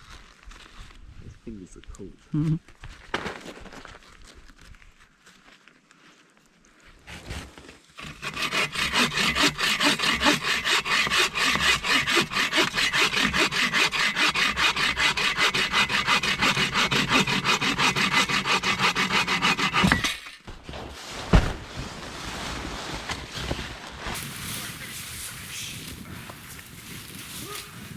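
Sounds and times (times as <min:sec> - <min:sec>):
hand saw cutting wood: 0:08.0 - 0:20.3, 0:24.2 - 0:27.9.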